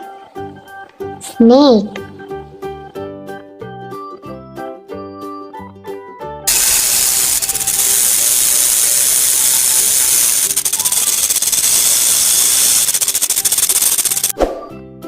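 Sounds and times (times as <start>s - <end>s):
music: 0.0s - 15.0s
fast rattling clicks: 6.5s - 14.4s.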